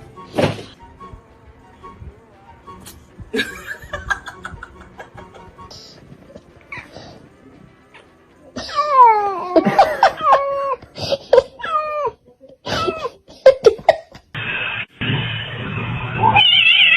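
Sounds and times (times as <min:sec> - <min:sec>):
cat meowing: 0:16.2 - 0:16.9.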